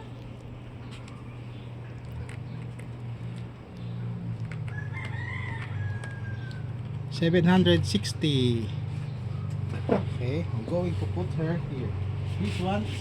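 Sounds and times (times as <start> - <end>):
steady low hum: 0.0 - 13.0
rooster crowing: 4.7 - 7.0.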